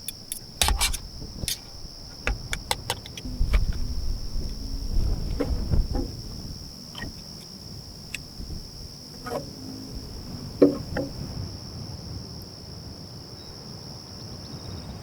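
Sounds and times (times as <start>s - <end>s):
crickets trilling: 0.0s - 15.0s
clicks and knocks: 0.1s - 3.9s, 9.2s - 9.7s, 10.6s - 11.3s
wind rumble on microphone: 0.3s - 15.0s.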